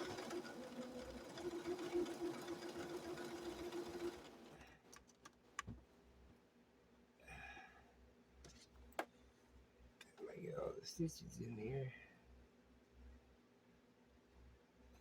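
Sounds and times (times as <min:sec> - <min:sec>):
sewing machine running: 0:00.0 - 0:04.7.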